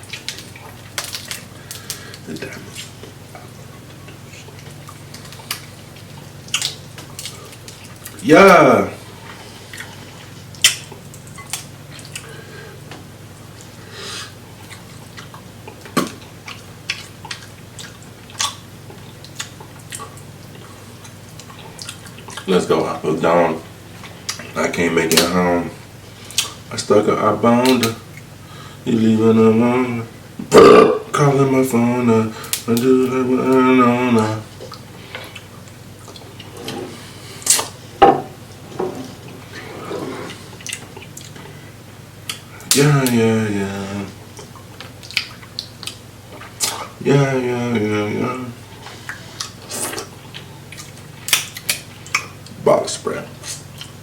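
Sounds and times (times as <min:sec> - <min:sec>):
steady low hum: 0:00.0 - 0:54.0
wet eating squelches: 0:00.0 - 0:54.0
wet chewing and lip smacks: 0:00.1 - 0:08.2, 0:14.6 - 0:22.5, 0:26.2 - 0:26.6, 0:34.6 - 0:36.5, 0:40.5 - 0:41.5, 0:44.3 - 0:46.9, 0:48.9 - 0:52.6.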